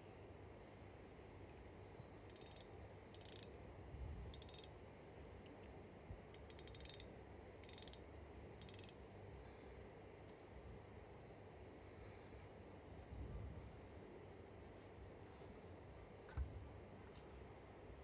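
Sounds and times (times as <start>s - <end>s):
spinning reel ticking: 2.3s - 3.5s, 4.4s - 4.7s, 6.4s - 9.0s.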